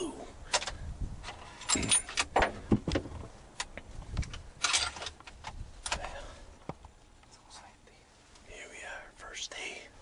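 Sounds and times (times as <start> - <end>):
handling knocks and clicks: 0.5 - 7.0.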